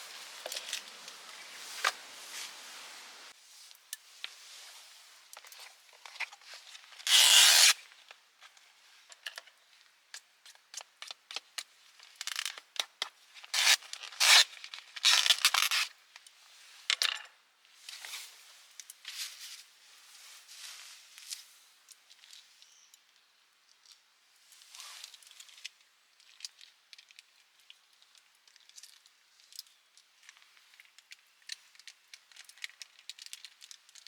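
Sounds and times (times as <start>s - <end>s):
packaging tearing and rustling: 6.0s - 7.9s, 13.4s - 15.9s.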